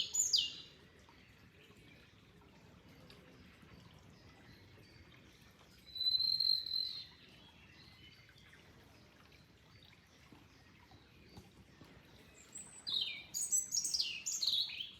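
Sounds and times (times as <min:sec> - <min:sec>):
faint flowing water: 0:00.0 - 0:14.9
birds chirping: 0:03.8 - 0:14.9.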